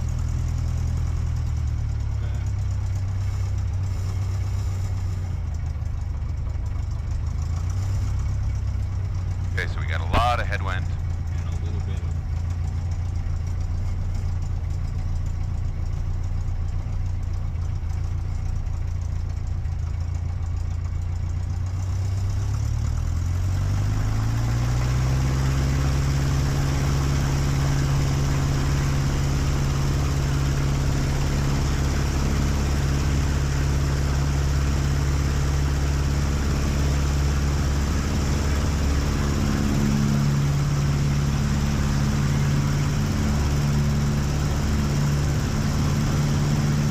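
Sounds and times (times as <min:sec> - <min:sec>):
airplane engine throttling up: 0:02.2 - 0:05.5, 0:24.3 - 0:46.9.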